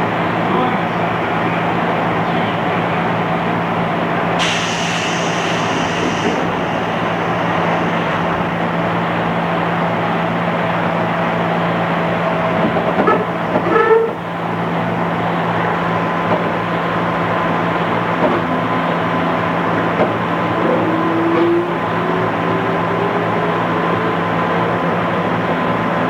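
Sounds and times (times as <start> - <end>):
train wheels and motors rumbling: 0.0 - 26.0
high hiss: 4.4 - 9.0.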